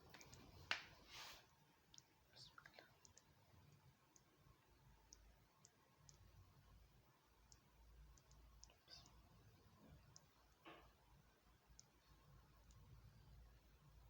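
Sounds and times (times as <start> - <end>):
faint low room hum: 0.0 - 14.0
soft high ticks: 1.9 - 6.5, 7.4 - 9.3, 9.9 - 10.8, 11.7 - 13.4.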